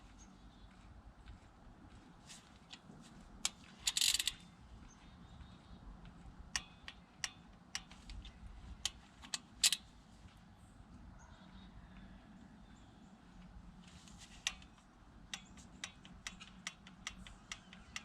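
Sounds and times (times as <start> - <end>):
sharp metal clicks: 2.7 - 4.5, 6.0 - 9.9, 14.4 - 18.0
ratchet clicking: 3.5 - 4.4, 6.6 - 9.9, 14.4 - 18.0.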